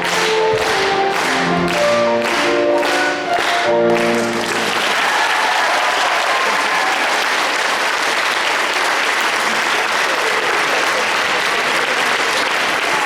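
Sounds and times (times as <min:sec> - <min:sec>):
song closing chords: 0:00.0 - 0:04.8
audience applause: 0:00.0 - 0:13.0.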